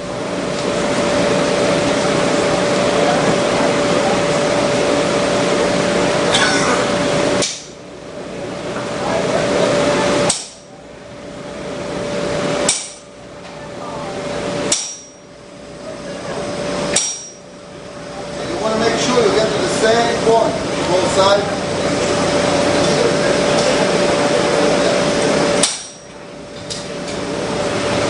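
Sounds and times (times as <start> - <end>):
hammer striking steel on anvil: 10.3 - 10.6, 12.7 - 13.0, 14.7 - 15.2, 16.9 - 17.4, 25.6 - 26.1.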